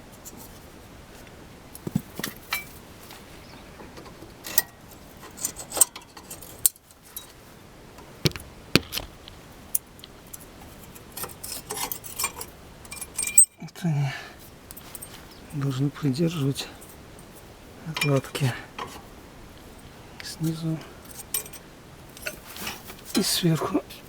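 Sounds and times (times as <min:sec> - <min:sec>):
metallic clicks and clinks: 0:11.2 - 0:13.6, 0:21.1 - 0:21.6.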